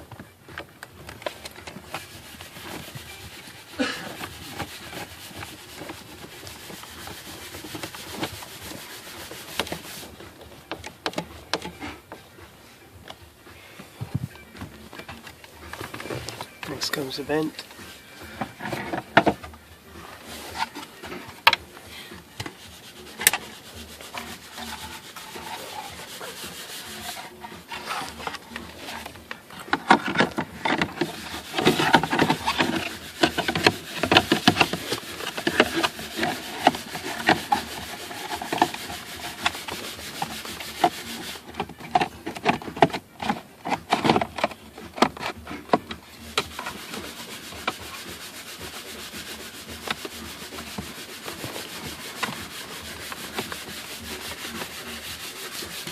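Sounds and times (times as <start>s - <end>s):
plastic rubbing on plastic: 0.0s - 55.9s.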